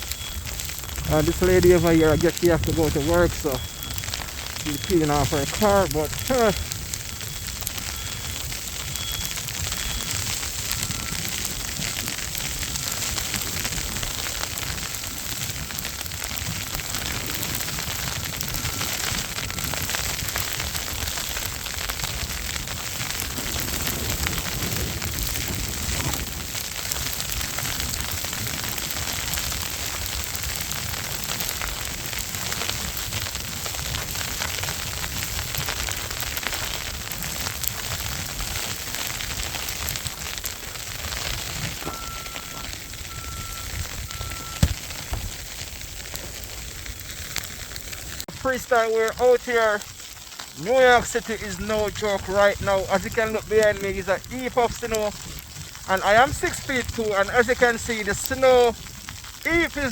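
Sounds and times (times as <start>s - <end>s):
wind buffeting microphone: 0.4s - 36.2s.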